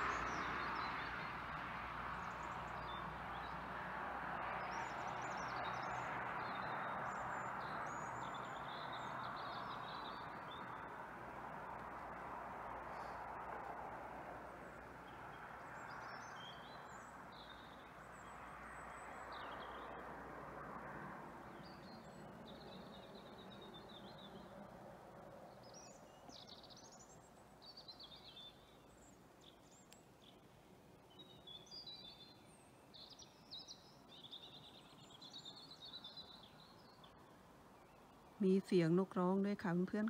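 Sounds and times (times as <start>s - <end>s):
soft outdoor background hush: 0.0s - 40.0s
songbirds chirping faintly: 0.0s - 40.0s.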